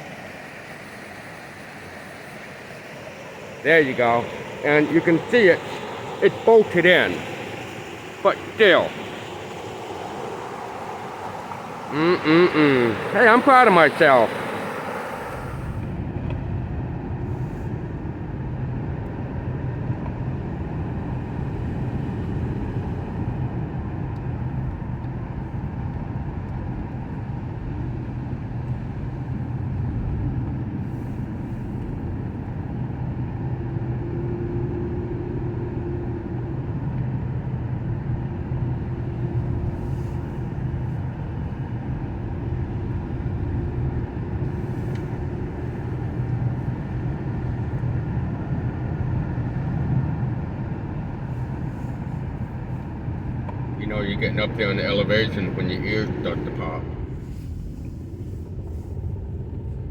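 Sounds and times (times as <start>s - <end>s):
low hum: 0.0s - 25.1s, 38.0s - 59.9s
car engine and road noise: 0.0s - 59.9s.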